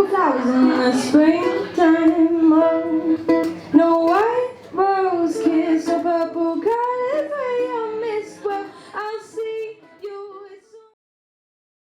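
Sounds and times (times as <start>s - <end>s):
high voice singing wordless notes: 0.6s - 11.0s.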